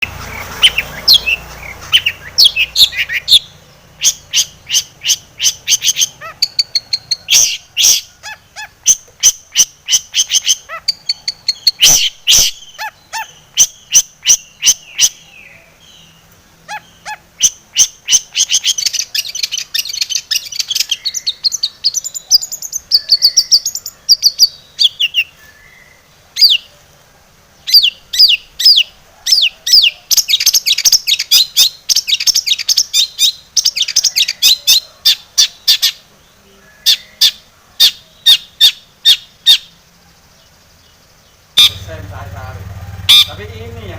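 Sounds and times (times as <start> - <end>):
shrike singing: 0.0 - 26.9, 40.6 - 43.9.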